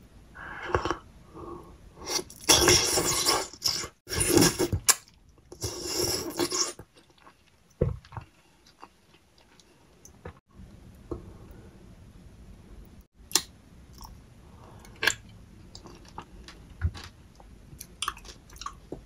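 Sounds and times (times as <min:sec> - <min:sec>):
person chewing soft fruit: 0:14.9 - 0:19.0.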